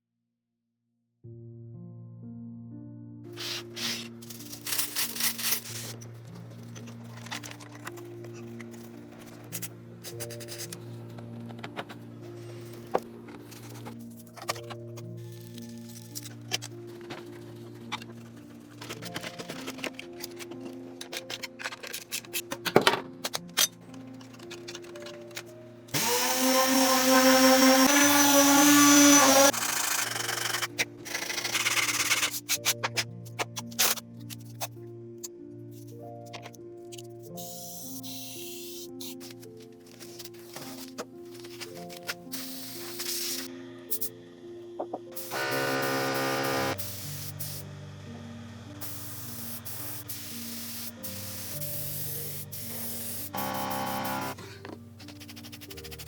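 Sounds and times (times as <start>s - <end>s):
small power tool whining: 25.9s - 30.7s, 45.3s - 46.8s, 53.4s - 54.4s
aerosol spray can hissing: 42.3s - 44.1s, 46.8s - 47.6s, 48.8s - 54.3s.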